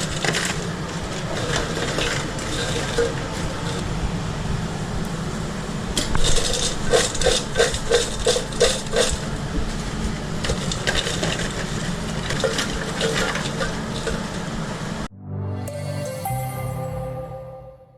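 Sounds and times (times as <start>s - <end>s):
kitchen clatter: 6.0s - 9.3s, 10.4s - 14.3s
music: 15.1s - 17.9s.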